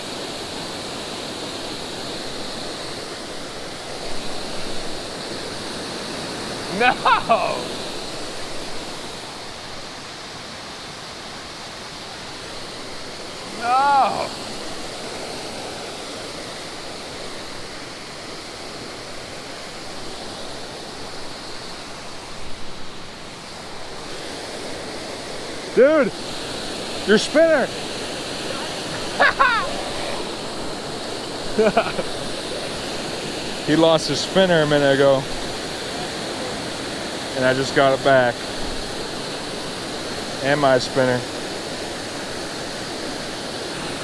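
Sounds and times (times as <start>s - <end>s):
waterfall pouring: 0.0s - 9.3s, 12.4s - 16.2s, 25.7s - 44.0s.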